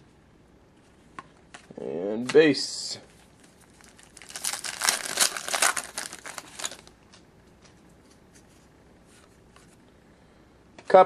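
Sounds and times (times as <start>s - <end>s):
cards being handled: 3.2s - 9.8s
wrapper tearing and crinkling: 3.5s - 7.0s.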